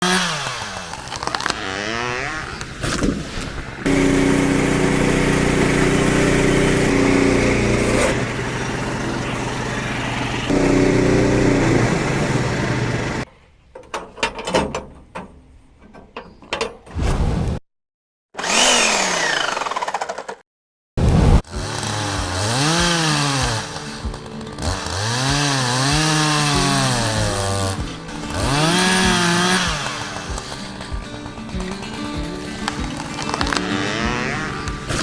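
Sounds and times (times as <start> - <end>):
engine running: 0.1 - 13.3, 21.4 - 35.0.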